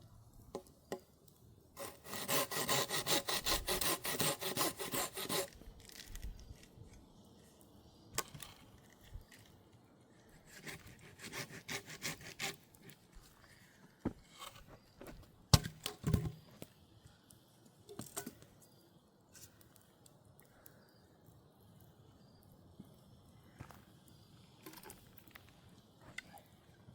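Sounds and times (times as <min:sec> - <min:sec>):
wood scraping: 0:01.8 - 0:06.7, 0:14.0 - 0:15.3.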